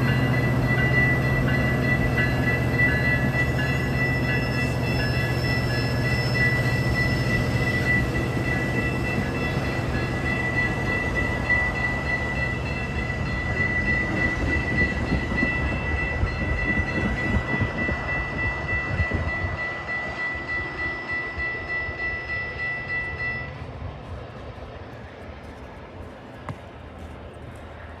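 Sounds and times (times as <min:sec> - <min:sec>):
train rumbling on track: 0:00.0 - 0:28.0.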